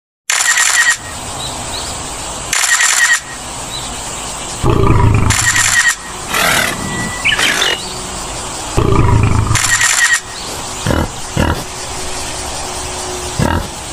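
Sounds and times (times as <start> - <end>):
lion roaring: 4.6 - 5.7, 6.3 - 7.8, 8.8 - 9.9, 10.8 - 11.7, 13.4 - 13.8.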